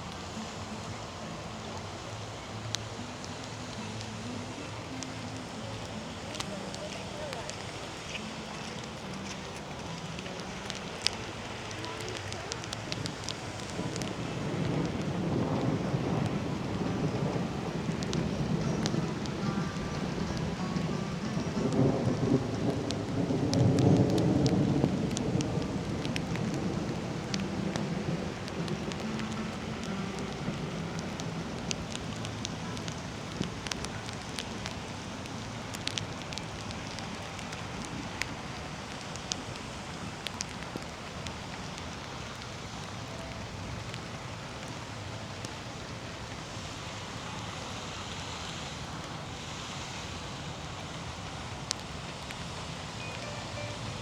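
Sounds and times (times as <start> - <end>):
sharp raindrops hitting nearby: 0.0 - 54.0
steady rain: 0.0 - 54.0
thunder rolling: 13.0 - 37.5.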